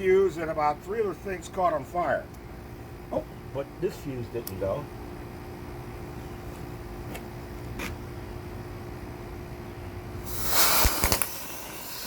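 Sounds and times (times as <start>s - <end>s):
firework hiss of sparks: 10.2s - 12.0s
firework cracks: 10.3s - 12.0s.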